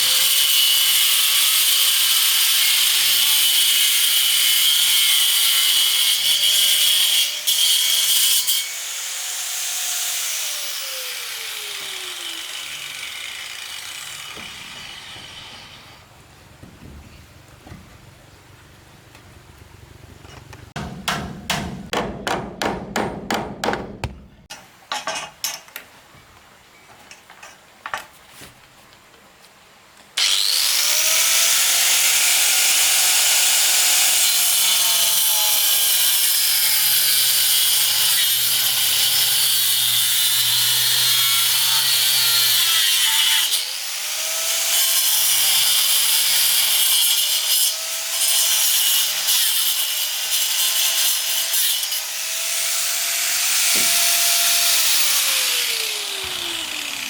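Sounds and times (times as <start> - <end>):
power saw cutting wood: 0.0 - 16.1, 30.2 - 57.0
knocks on wood: 20.8 - 24.4.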